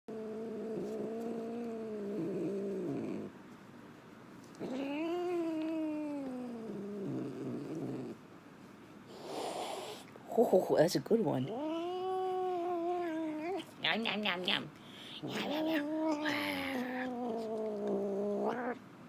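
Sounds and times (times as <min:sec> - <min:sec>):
cat growling: 0:00.1 - 0:03.4, 0:04.5 - 0:08.2, 0:11.4 - 0:14.2, 0:14.9 - 0:18.8.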